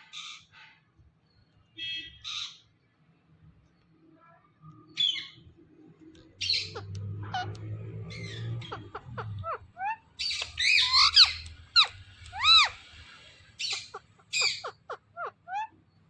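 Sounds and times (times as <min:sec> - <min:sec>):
parrot squawking: 0:06.4 - 0:15.8.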